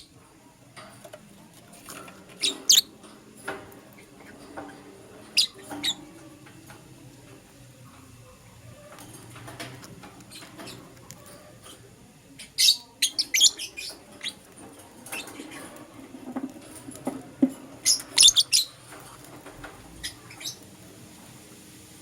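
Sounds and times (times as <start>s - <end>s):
lovebirds chirping: 1.8s - 9.4s, 10.2s - 15.9s, 17.7s - 20.8s.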